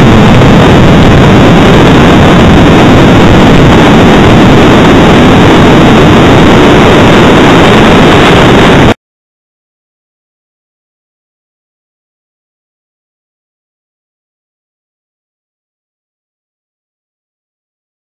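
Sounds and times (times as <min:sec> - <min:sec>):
jet engine noise: 0:00.0 - 0:09.0.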